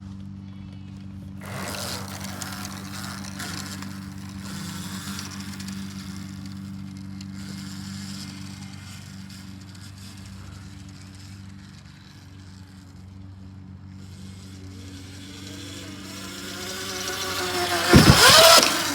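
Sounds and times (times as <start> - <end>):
electric motor hum: 1.4 - 10.6, 13.9 - 18.9
tyre and wind noise: 16.8 - 18.9.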